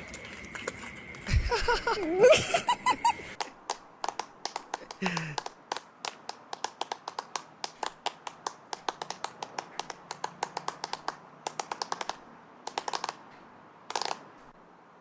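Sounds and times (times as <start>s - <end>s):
rapid sharp clicks: 3.4s - 14.6s.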